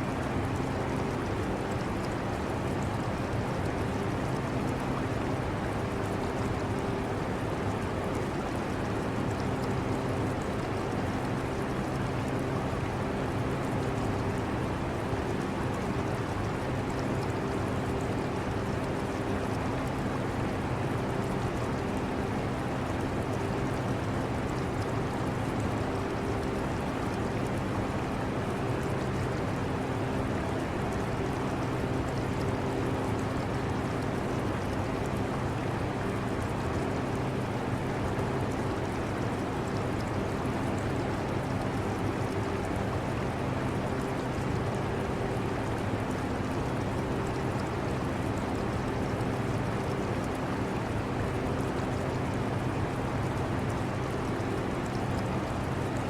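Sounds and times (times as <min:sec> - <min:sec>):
aquarium water trickling: 0:00.1 - 0:56.0.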